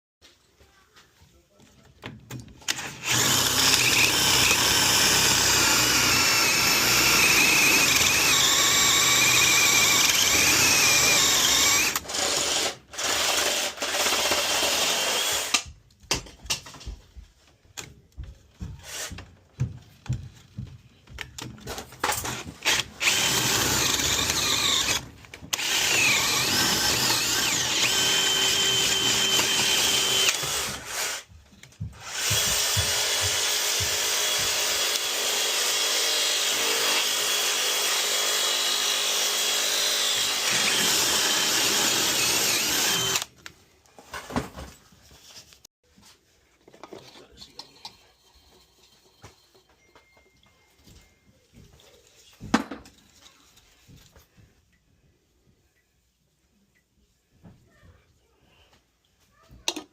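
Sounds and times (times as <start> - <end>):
power tool motor whine: 2.7 - 15.6, 22.6 - 31.2, 32.0 - 43.3.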